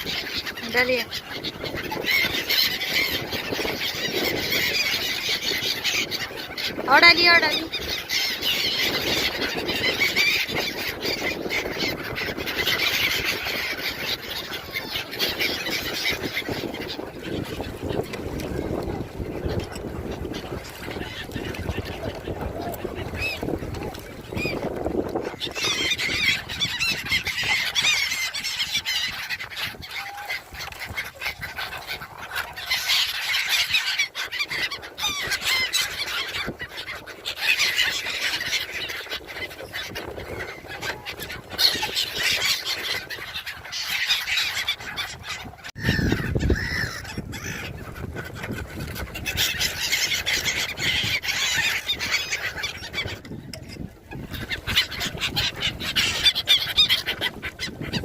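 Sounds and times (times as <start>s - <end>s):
gulls calling: 0.0s - 58.0s.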